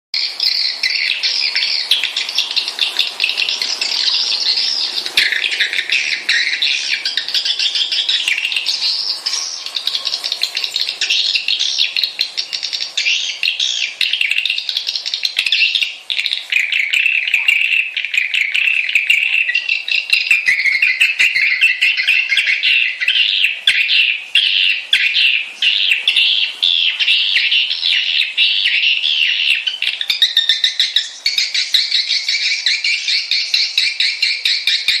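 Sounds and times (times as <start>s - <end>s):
swiftlets twittering: 0.2s - 35.0s.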